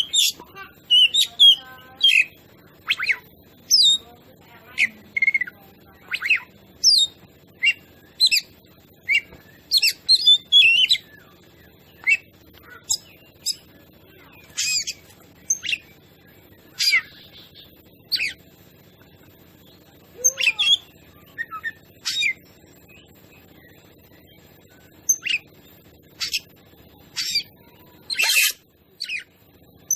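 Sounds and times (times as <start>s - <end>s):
bird singing whistled notes: 0.0s - 4.1s, 4.7s - 13.6s, 14.2s - 18.5s, 19.6s - 25.5s.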